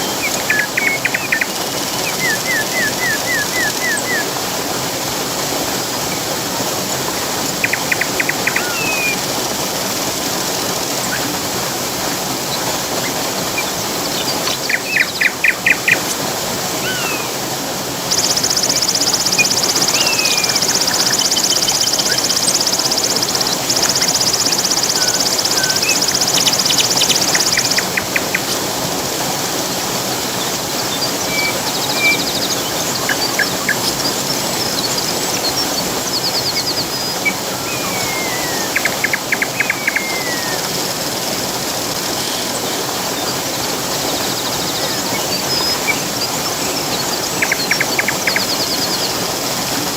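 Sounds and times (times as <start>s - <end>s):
songbirds chirping: 0.0s - 4.5s, 6.1s - 11.3s, 12.4s - 17.4s, 18.1s - 28.9s, 29.5s - 49.5s
waterfall rushing water: 0.0s - 49.9s.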